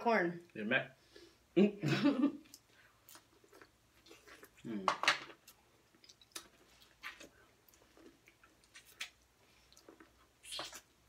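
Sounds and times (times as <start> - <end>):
people chewing food: 2.1 - 11.0
mouth clicks and smacks: 9.8 - 11.0.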